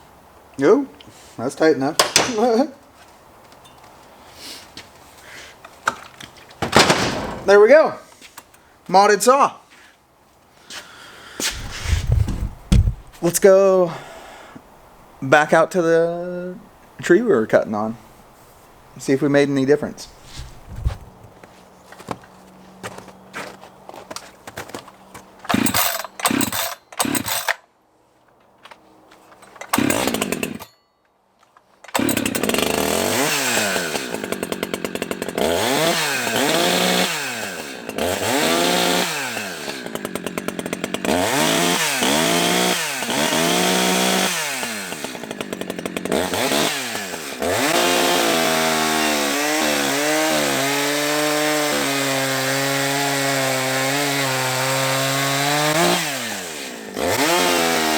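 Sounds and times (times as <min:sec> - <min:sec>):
chainsaw starting knocks: 0:02.0 - 0:02.5, 0:06.6 - 0:07.8, 0:11.4 - 0:13.3, 0:25.5 - 0:27.5, 0:29.6 - 0:30.7, 0:31.9 - 0:37.3, 0:43.3 - 0:48.2
chainsaw revving: 0:11.4 - 0:13.2, 0:25.5 - 0:27.5, 0:29.6 - 0:30.7, 0:31.9 - 0:57.9.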